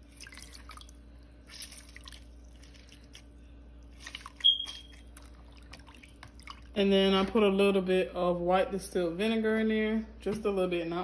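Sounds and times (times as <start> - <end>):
wet squelching of raw chicken: 0.0 - 6.7.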